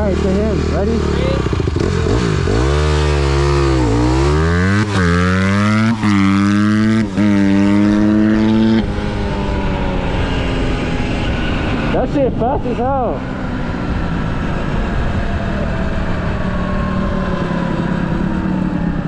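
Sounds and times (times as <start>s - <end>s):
dirt bike engine revving: 0.0s - 15.1s.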